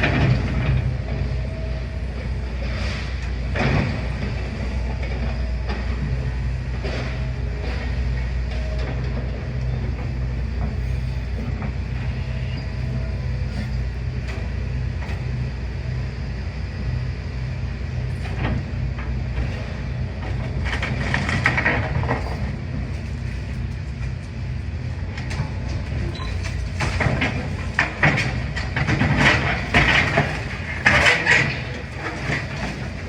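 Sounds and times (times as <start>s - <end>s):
excavator diesel engine running: 0.0s - 33.0s
crunching and clattering rubble: 18.2s - 24.4s, 25.2s - 33.0s.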